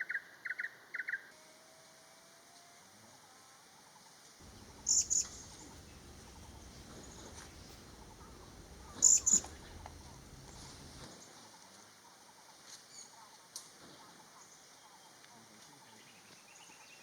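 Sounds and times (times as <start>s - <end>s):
steady low rumble: 4.4s - 11.1s.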